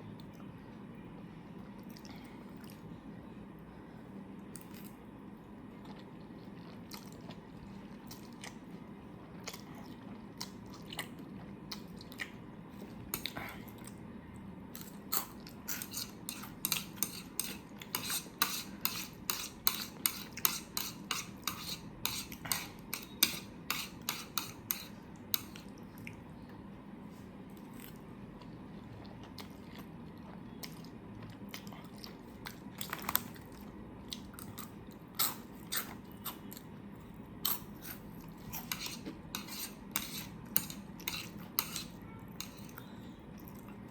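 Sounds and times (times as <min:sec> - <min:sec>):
chewing: 0:05.8 - 0:14.0.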